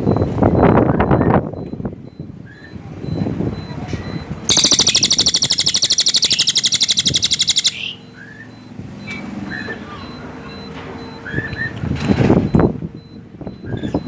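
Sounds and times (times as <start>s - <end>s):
soft short bird chirps: 4.5s - 8.0s
bird singing rapid high trill: 4.5s - 8.5s.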